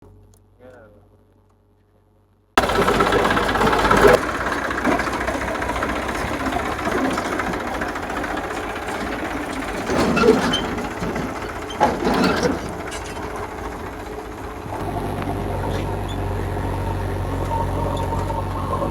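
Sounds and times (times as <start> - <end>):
metallic knocks and clatters: 2.6 - 14.3
diesel engine under load: 2.6 - 18.9.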